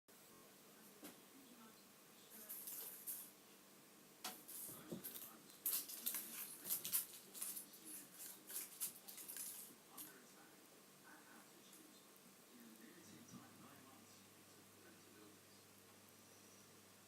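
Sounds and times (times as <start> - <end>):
plastic wrapper crackling: 5.2 - 9.6.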